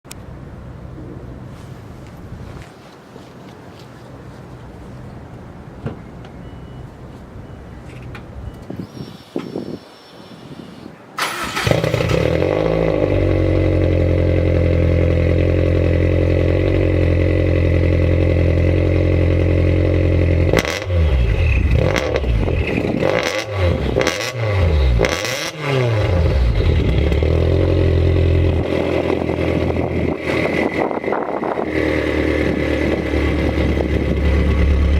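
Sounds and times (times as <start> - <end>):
car engine starting and idling: 11.2 - 34.9
engine throttle blips: 11.2 - 34.9.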